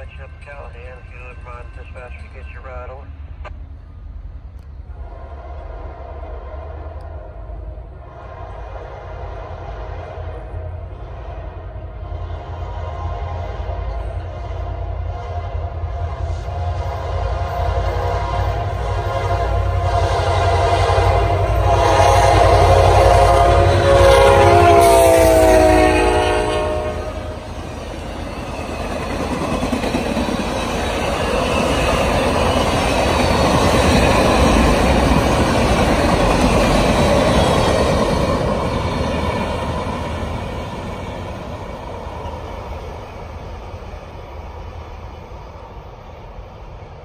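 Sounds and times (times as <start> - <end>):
passenger cars rumbling and clattering: 0.0 - 4.9
train air horn: 4.9 - 27.5.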